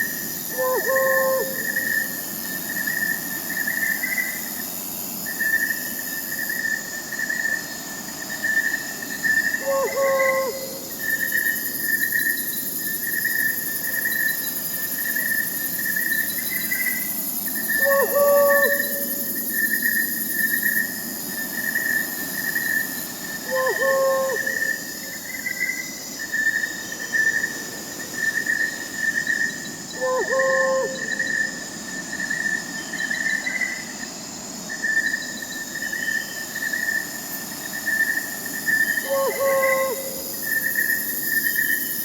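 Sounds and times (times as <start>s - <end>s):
crickets chirping: 0.0s - 42.0s
owl hooting: 0.5s - 2.1s, 9.6s - 11.0s, 17.7s - 19.5s, 23.4s - 25.2s, 30.0s - 31.4s, 39.0s - 40.5s.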